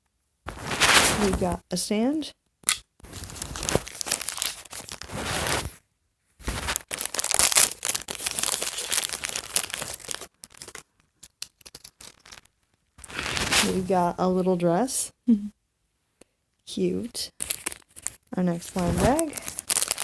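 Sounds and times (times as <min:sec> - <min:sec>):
plastic bag tearing and crinkling: 0:00.5 - 0:01.5, 0:03.0 - 0:05.8, 0:06.4 - 0:13.8, 0:17.3 - 0:20.0.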